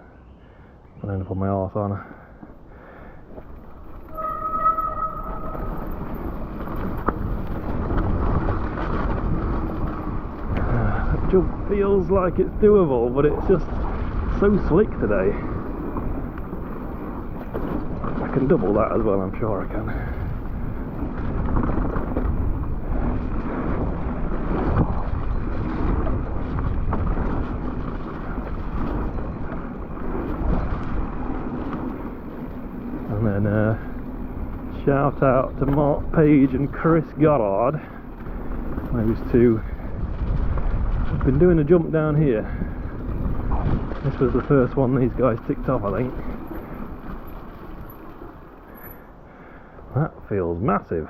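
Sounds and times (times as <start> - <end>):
bike tyre and wind noise: 0.0 - 51.0
brief steady squeal: 4.1 - 6.2.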